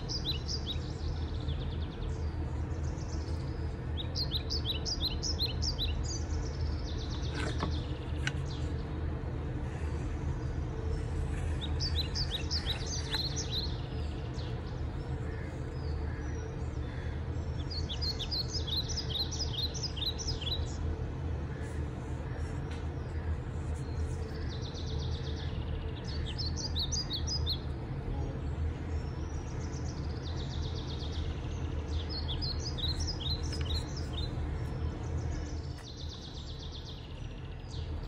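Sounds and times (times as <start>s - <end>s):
low background rumble: 0.0s - 38.0s
small birds chirping: 0.0s - 38.0s.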